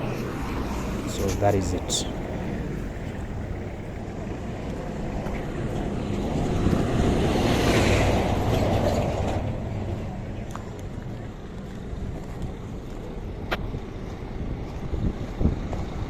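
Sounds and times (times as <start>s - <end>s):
low engine rumble: 0.0s - 4.0s
vehicle passing on road: 0.0s - 4.0s.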